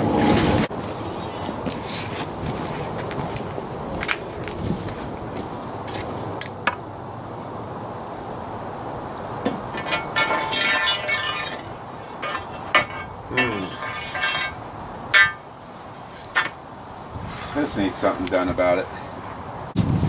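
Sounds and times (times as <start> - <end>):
metal objects clinking: 9.6 - 15.5, 16.3 - 16.6.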